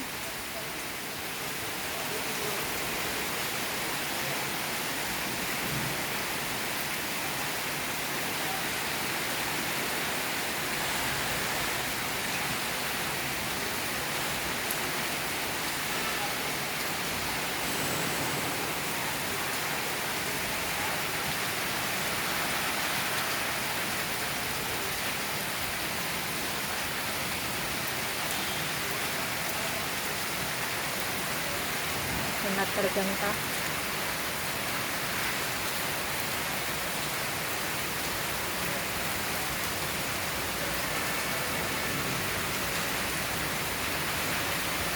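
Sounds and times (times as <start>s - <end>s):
heavy rain pattering on leaves: 0.0s - 44.9s.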